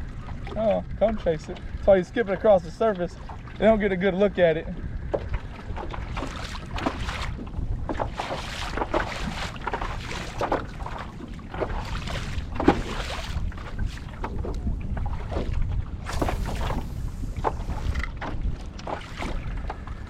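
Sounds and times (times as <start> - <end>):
water splashing against kayak hull: 0.0 - 20.0
wind rumbling on microphone: 0.0 - 20.0.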